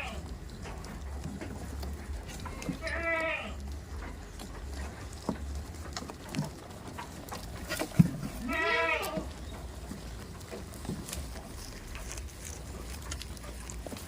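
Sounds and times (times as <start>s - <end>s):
goat bleating: 0.0s - 0.3s, 2.5s - 3.8s, 8.2s - 9.4s.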